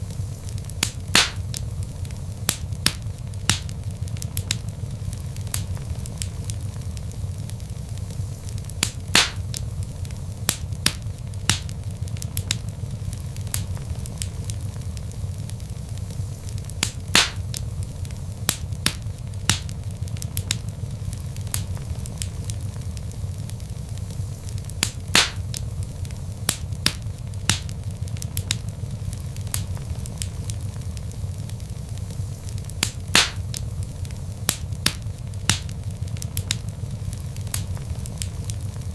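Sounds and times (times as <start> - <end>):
low fire rumble: 0.0 - 38.9
wood fire crackling and popping: 0.0 - 38.9.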